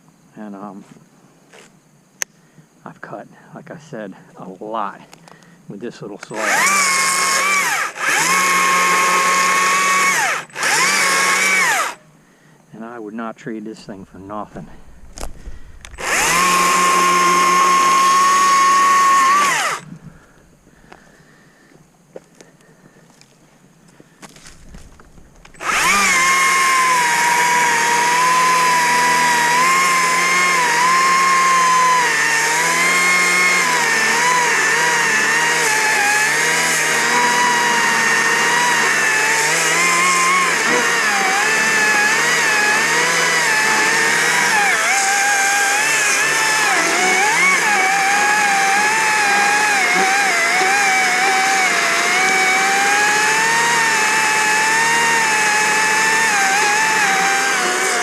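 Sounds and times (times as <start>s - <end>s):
electric chainsaw cutting wood: 6.2s - 12.0s, 14.9s - 20.0s, 24.3s - 58.0s.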